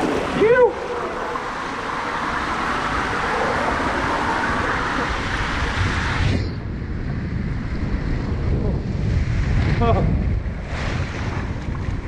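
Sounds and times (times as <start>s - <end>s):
water rushing down slide: 0.0s - 6.6s.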